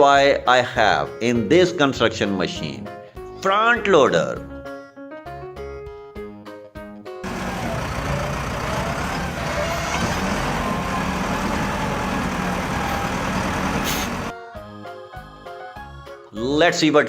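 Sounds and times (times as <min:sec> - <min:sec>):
heavy vehicle engine rumbling: 0:07.2 - 0:14.3.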